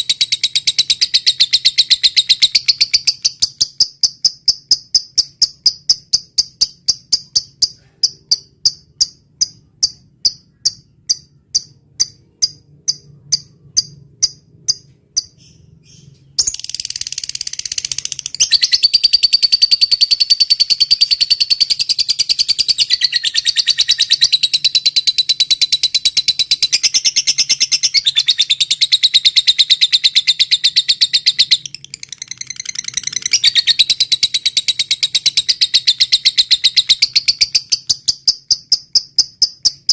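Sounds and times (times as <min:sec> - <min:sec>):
insect chirping: 0:00.0 - 0:22.9
lovebird chattering trill: 0:00.0 - 0:39.9.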